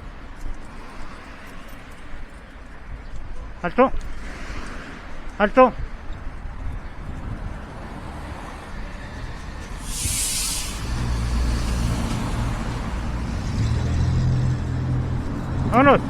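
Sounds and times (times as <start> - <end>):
heavy vehicle engine running: 8.6 - 15.7
air brakes hissing: 9.6 - 12.3.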